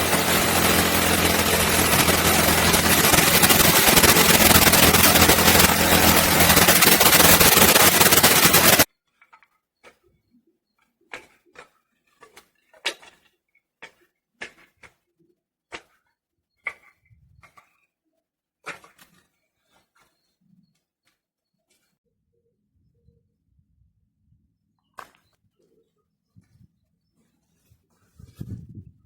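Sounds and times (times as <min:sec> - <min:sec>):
engine running loudly: 0:00.0 - 0:08.9.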